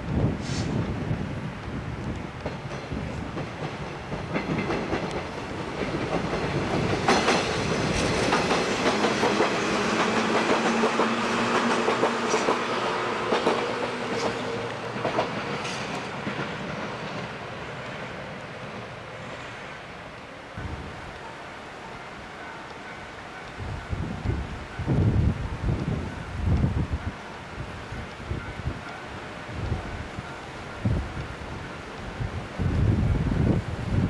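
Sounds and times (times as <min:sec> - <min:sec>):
train wheels clicking on rails: 0:02.0 - 0:18.2.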